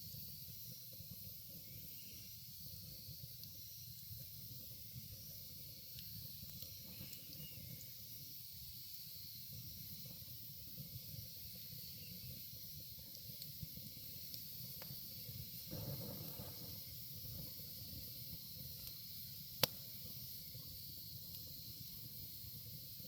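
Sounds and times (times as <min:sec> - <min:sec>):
fire crackles: 0:00.0 - 0:23.0
wood bonfire burning: 0:00.0 - 0:23.0.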